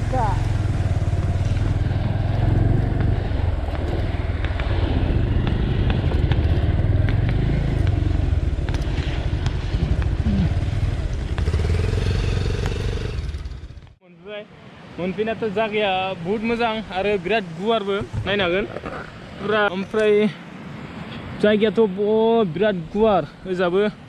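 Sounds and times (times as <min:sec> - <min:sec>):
motorcycle engine running: 0:00.0 - 0:14.0
road and wind noise: 0:00.0 - 0:24.0.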